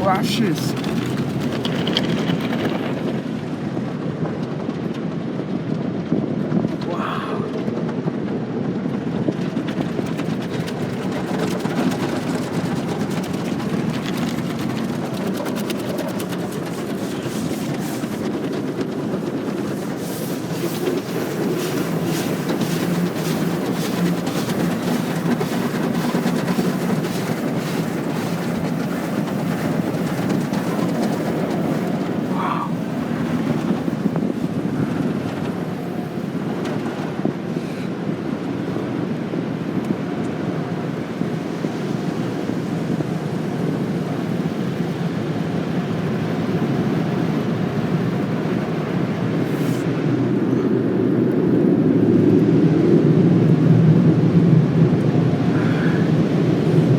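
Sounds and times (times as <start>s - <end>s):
brushes slapping and scrubbing car: 15.0s - 34.8s, 49.4s - 49.9s.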